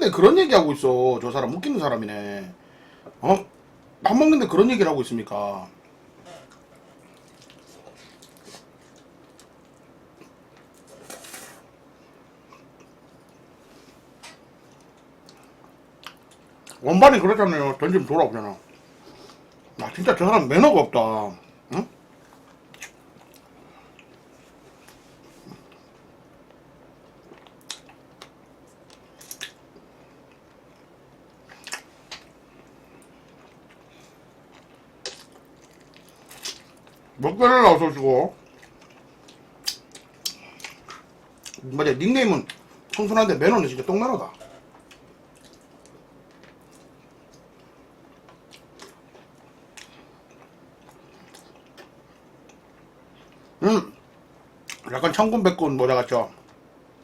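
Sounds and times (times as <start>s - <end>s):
person chewing food: 5.9s - 10.9s, 22.2s - 26.0s, 27.0s - 37.2s, 38.4s - 41.6s, 44.4s - 53.6s.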